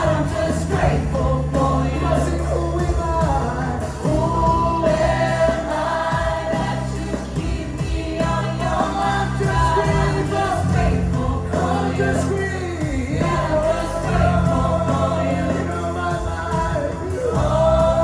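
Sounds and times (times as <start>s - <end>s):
gospel band playing: 0.0s - 18.0s
group of singers: 0.0s - 18.0s.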